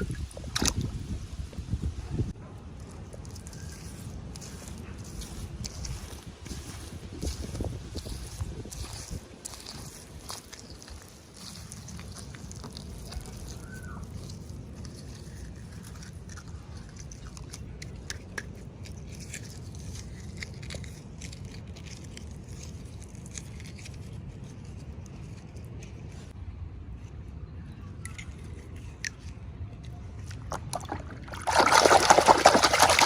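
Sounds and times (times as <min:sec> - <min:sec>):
toy packaging clicks and crackles: 0:02.8 - 0:25.9.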